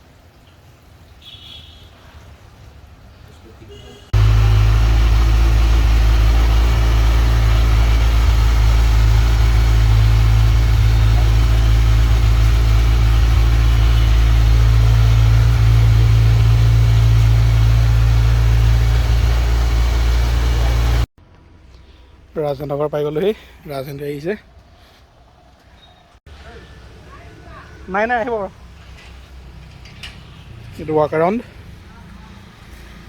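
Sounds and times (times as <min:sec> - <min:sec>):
motorcycle engine running: 0:04.2 - 0:21.1.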